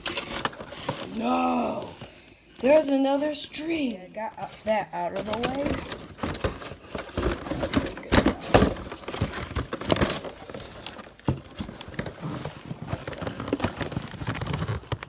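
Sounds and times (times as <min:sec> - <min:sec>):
cardboard packaging crinkling: 0:00.0 - 0:15.0.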